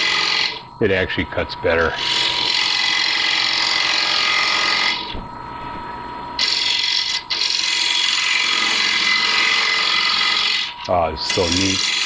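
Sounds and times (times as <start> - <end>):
lathe tool scraping wood: 0.0 - 0.6, 1.7 - 5.1, 6.4 - 12.0.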